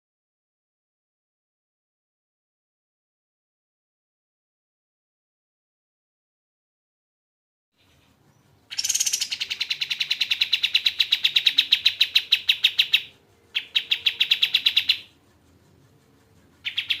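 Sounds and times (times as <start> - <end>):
songbird rattling trills: 7.8 - 17.0.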